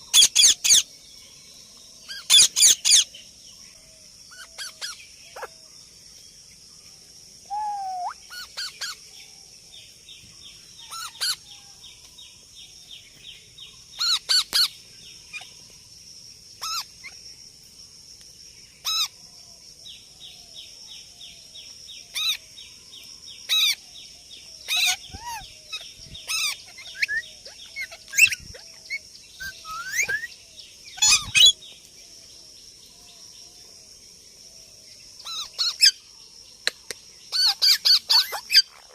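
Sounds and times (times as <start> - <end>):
parrot squawking: 37.4 - 38.9.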